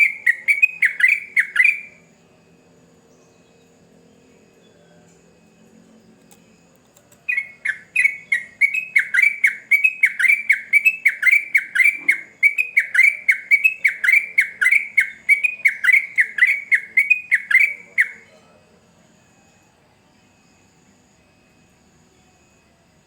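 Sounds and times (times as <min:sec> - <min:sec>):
bird singing rapid falling notes: 0:00.0 - 0:02.1, 0:06.3 - 0:18.4.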